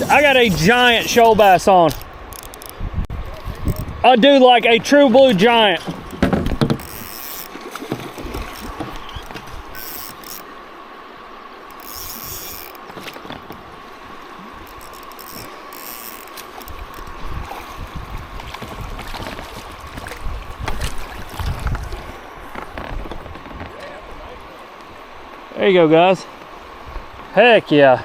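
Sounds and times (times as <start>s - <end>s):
fishing reel cranking: 0.0s - 2.8s, 6.8s - 7.5s, 9.7s - 10.4s, 11.7s - 12.8s, 14.6s - 17.1s
reel drag ratcheting: 0.0s - 2.8s, 5.9s - 10.5s, 11.7s - 13.6s, 14.6s - 17.2s
knocks: 5.8s - 6.9s.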